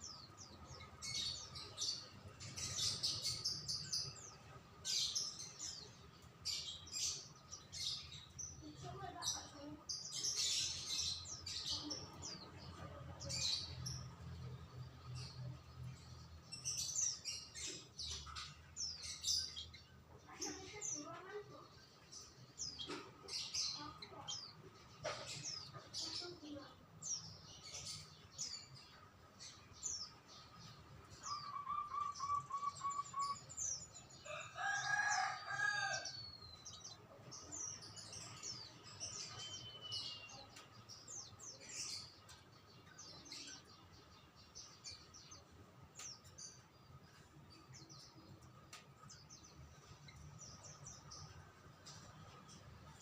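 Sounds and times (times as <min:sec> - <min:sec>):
small birds chirping: 0:00.0 - 0:53.0
rooster crowing: 0:34.2 - 0:36.2.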